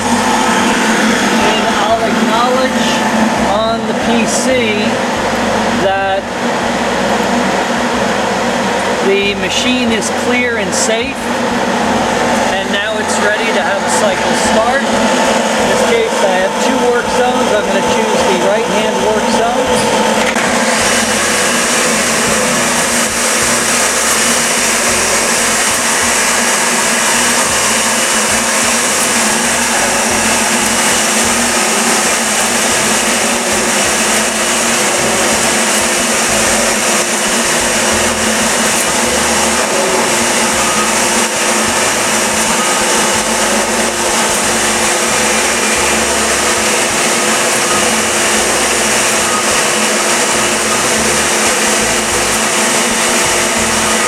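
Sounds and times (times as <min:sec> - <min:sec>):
machine motor whirring: 0:00.0 - 0:54.0
vacuum pump humming: 0:00.0 - 0:54.0.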